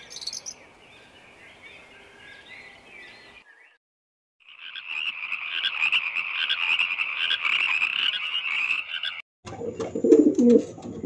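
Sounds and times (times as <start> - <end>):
frog croaking: 4.4 - 9.2.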